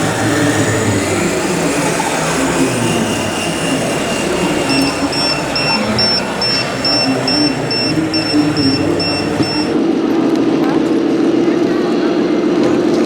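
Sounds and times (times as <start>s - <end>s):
model trucks mechanical din: 0.0s - 9.8s
high electronic beeping: 0.3s - 9.8s.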